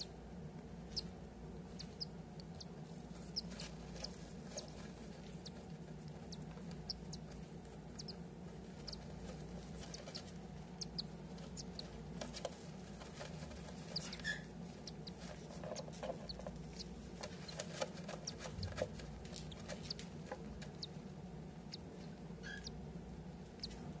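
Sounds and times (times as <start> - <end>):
high chick peeps: 0.0 - 24.0
steady low hum: 0.0 - 24.0.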